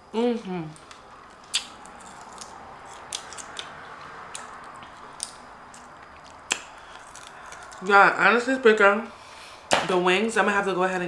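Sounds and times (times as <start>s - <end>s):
chewing and gnawing: 0.8s - 7.8s.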